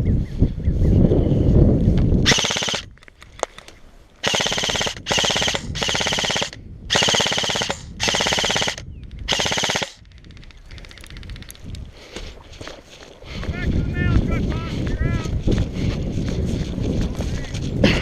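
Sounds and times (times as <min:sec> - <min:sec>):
airsoft rifle bursts: 0:02.3 - 0:10.2.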